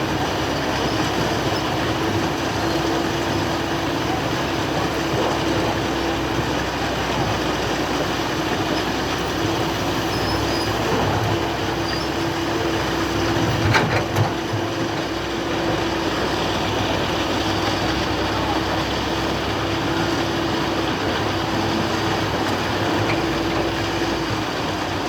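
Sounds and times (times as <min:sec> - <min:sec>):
excavator running: 0:00.0 - 0:25.0.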